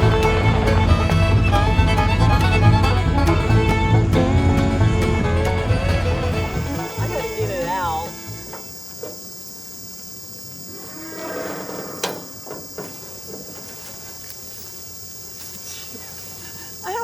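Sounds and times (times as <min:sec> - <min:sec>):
insect chirring: 0:05.2 - 0:17.0
cow lowing: 0:10.6 - 0:12.4.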